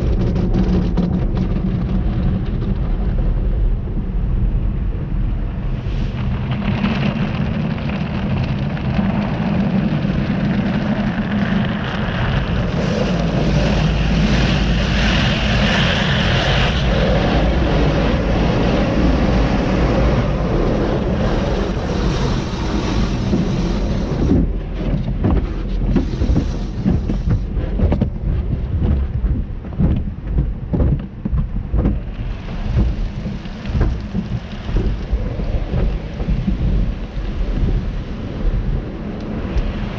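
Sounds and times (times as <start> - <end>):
car wash machinery: 0.0 - 39.9
heavy thumping and surging: 0.0 - 39.9
water spray rushing: 12.6 - 24.5.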